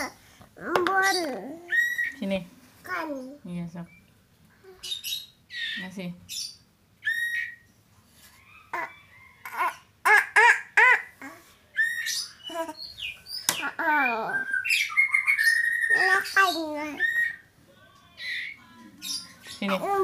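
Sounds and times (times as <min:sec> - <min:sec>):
child's high-pitched voice: 0:00.0 - 0:01.8, 0:02.8 - 0:03.4, 0:13.6 - 0:14.5, 0:15.9 - 0:17.3, 0:19.7 - 0:20.0
bird squawking and calling: 0:00.8 - 0:02.2, 0:04.8 - 0:07.7, 0:08.4 - 0:17.5.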